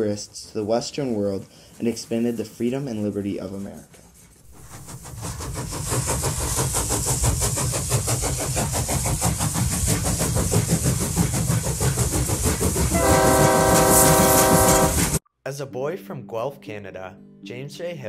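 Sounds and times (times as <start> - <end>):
train chugging rhythmically: 0.0 - 15.2
train whistle chord: 13.0 - 15.2.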